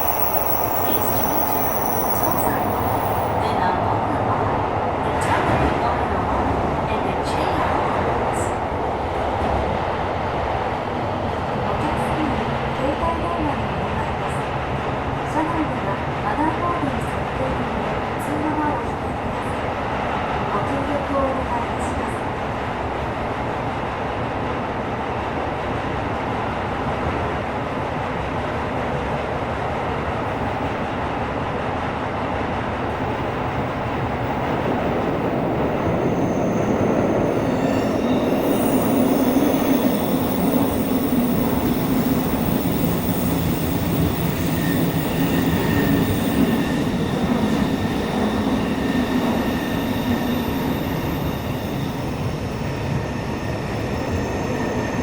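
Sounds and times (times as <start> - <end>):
high-pitched wheel squeal: 0.0 - 3.5, 33.1 - 55.0
subway train rumbling in tunnel: 0.0 - 55.0.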